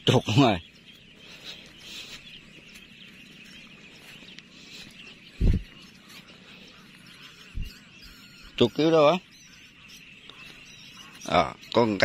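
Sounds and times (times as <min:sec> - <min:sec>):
distant birds chirping: 0:00.0 - 0:12.0.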